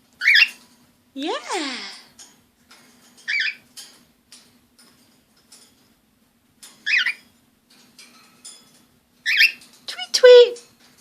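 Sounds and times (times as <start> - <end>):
cockatiel chirping: 0.2 - 0.6, 6.8 - 7.2, 9.3 - 9.6.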